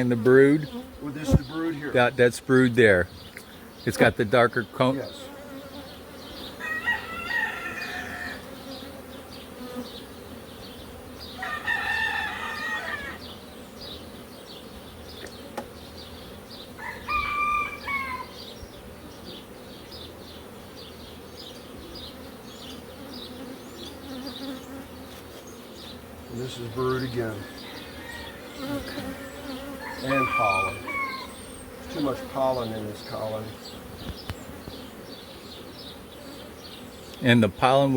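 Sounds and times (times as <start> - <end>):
bees buzzing: 0.0 - 37.9
rooster crowing: 6.6 - 8.5, 11.4 - 13.3, 16.8 - 18.4, 27.3 - 31.6.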